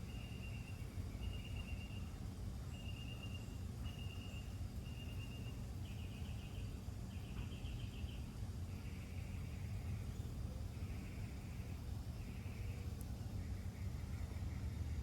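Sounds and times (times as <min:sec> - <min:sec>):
low outdoor rumble: 0:03.4 - 0:15.0.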